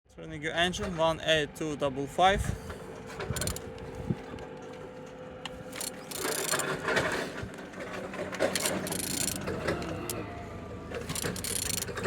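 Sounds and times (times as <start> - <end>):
ratchet wrench clicking: 3.4 - 3.7, 5.7 - 6.7, 8.4 - 10.0, 11.0 - 12.0.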